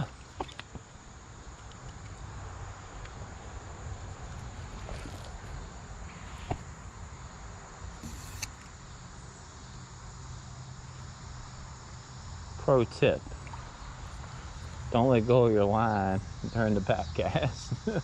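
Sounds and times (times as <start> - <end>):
insect chorus trilling: 0.0 - 18.0
brief hiss: 8.0 - 8.7.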